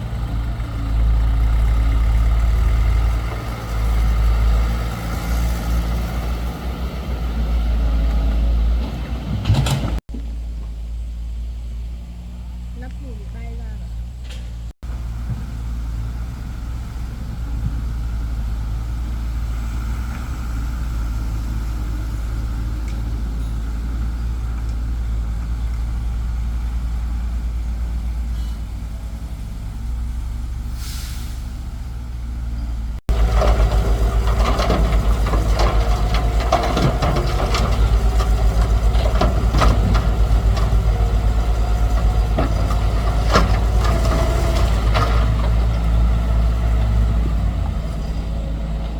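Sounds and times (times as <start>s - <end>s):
diesel engine humming: 0.0s - 48.9s
rattling and clanking: 8.1s - 10.7s, 33.0s - 48.9s.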